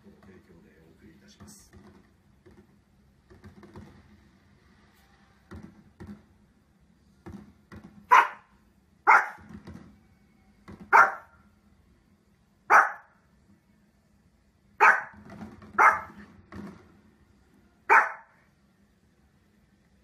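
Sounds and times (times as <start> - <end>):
small dog barking: 8.1 - 9.5, 10.9 - 11.4, 12.7 - 13.2, 14.8 - 15.2, 15.8 - 16.2, 17.9 - 18.4.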